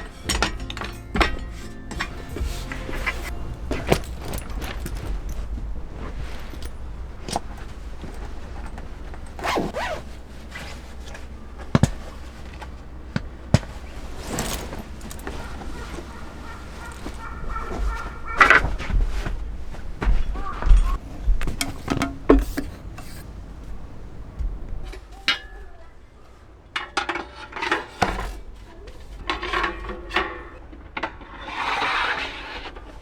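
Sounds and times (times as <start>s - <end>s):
steady low rumble: 0.0s - 25.0s
rustling or zipping sweeps: 1.0s - 20.0s.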